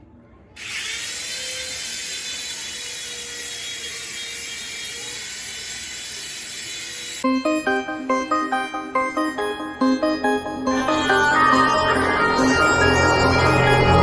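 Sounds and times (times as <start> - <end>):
toy helicopter motor whining: 0.6 - 7.3.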